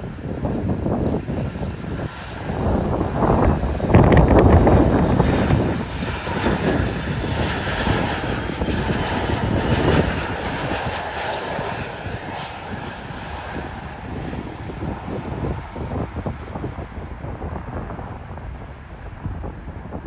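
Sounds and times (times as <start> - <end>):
jet engines passing: 0.0 - 20.0
wind buffeting microphone: 0.0 - 20.0.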